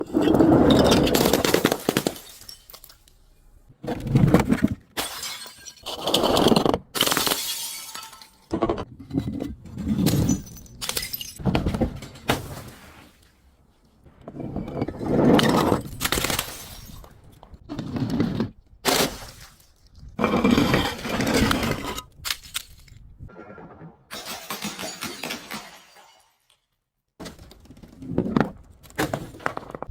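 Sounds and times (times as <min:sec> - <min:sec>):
glass crushing and breaking: 0:00.1 - 0:03.5, 0:04.9 - 0:08.8, 0:09.9 - 0:12.8, 0:24.1 - 0:26.8.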